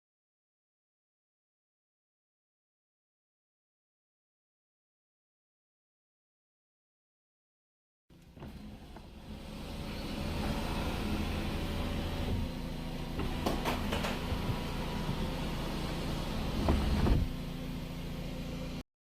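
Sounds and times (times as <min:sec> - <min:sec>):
sunroof electric motor running: 0:08.2 - 0:18.8
thump: 0:16.6 - 0:17.4.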